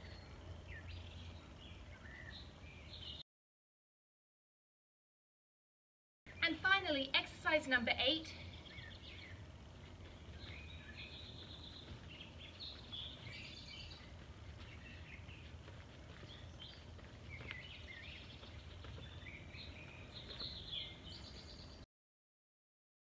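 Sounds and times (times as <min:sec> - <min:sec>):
songbirds chirping and singing: 0:00.0 - 0:03.2, 0:06.3 - 0:21.8
low background rumble: 0:06.3 - 0:21.8.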